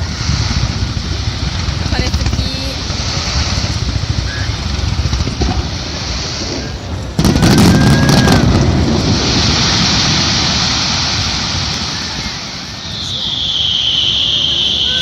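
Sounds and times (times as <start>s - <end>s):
rumble: 0.0s - 12.8s
firework crackle: 0.0s - 15.0s
firework shell boom: 5.0s - 6.3s.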